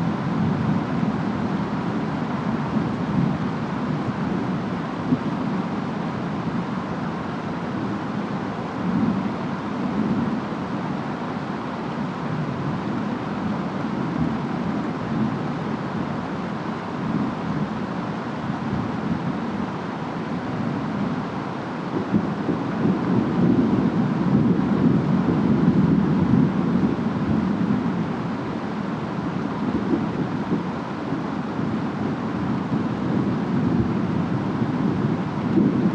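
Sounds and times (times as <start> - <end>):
rain: 0.0 - 35.9
wind: 0.0 - 35.9
deep rumble of thunder: 22.0 - 28.0.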